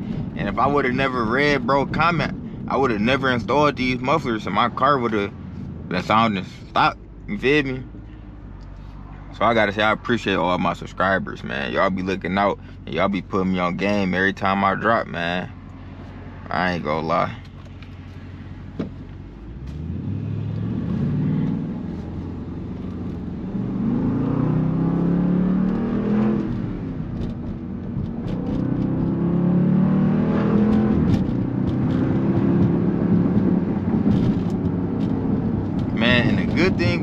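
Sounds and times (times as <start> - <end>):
car engine accelerating: 13.0 - 37.0.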